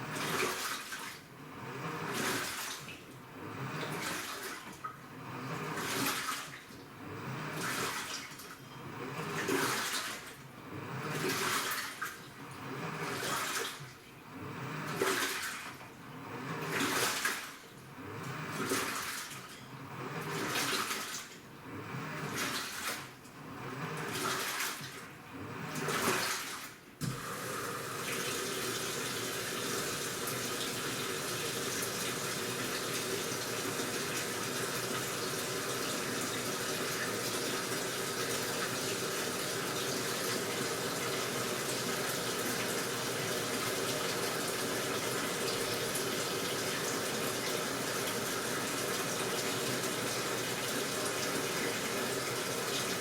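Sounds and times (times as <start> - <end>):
water swishing in washing machine: 0.0 - 53.0
water pouring into tub: 14.9 - 15.8, 18.6 - 19.5, 25.9 - 53.0.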